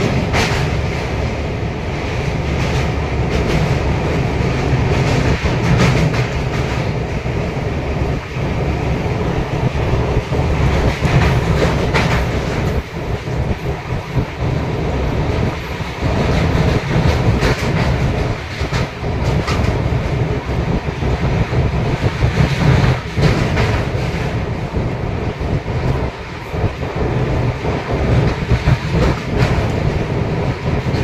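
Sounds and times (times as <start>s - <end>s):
clickety-clack over rail joints: 0.0s - 31.0s
train wheels rumbling on rails: 0.0s - 31.0s.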